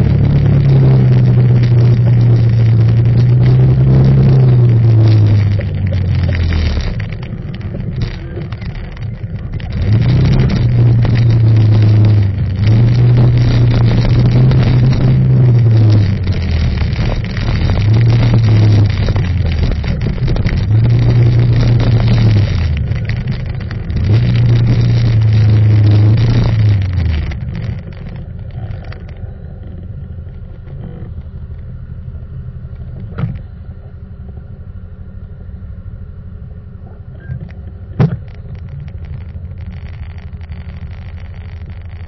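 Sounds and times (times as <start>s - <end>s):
motorcycle engine: 0.0s - 31.6s.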